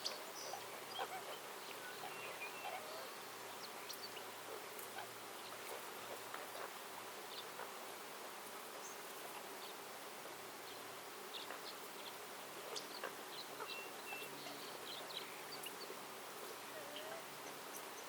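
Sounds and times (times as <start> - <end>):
steady hiss: 0.0 - 18.0
bird chirps: 12.7 - 15.9.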